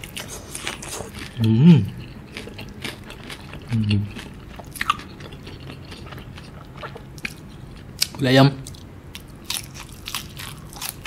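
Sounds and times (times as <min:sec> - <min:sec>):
close-up chewing: 0:00.0 - 0:11.0
closed-mouth hums: 0:00.3 - 0:02.2, 0:03.6 - 0:04.2.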